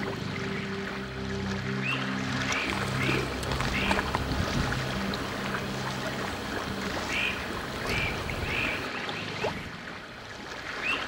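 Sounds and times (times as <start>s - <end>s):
water noise: 0.0s - 11.0s
bird calling: 1.8s - 8.9s.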